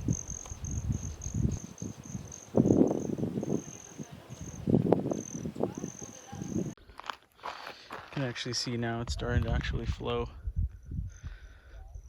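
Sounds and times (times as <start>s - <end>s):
high-pitched insect trill: 0.0s - 6.8s
footsteps on dry ground: 6.3s - 10.0s.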